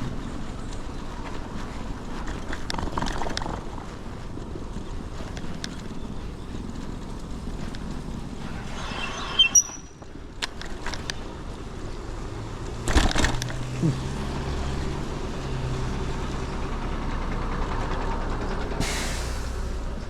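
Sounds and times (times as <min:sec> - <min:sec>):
road noise on wet pavement: 0:00.0 - 0:20.0
sharp clicks and knocks: 0:02.2 - 0:04.0, 0:10.0 - 0:11.3, 0:12.8 - 0:13.8.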